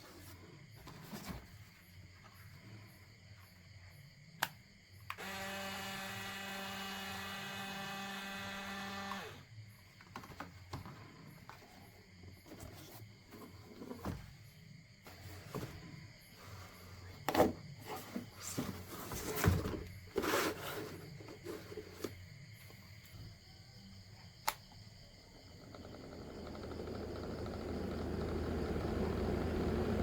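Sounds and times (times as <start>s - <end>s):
small electric motor buzzing: 5.1s - 9.5s.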